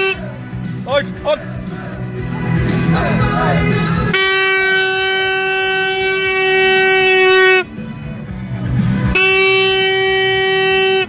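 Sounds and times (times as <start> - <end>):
vehicle horn blast: 0.0 - 0.4, 4.0 - 7.8, 9.0 - 11.0.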